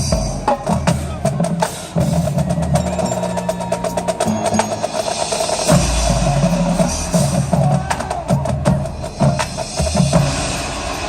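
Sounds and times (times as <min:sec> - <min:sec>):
bass drum notes: 0:00.0 - 0:03.1, 0:05.7 - 0:10.9
marching band playing: 0:00.0 - 0:11.0
heavy low drum hit: 0:05.7 - 0:11.0.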